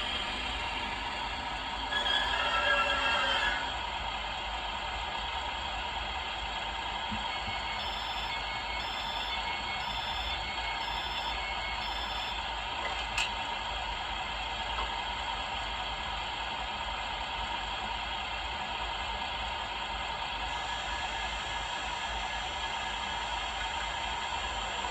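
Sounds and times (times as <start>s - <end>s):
model train running hum: 0.0s - 24.9s
electronic beeps: 7.1s - 12.4s.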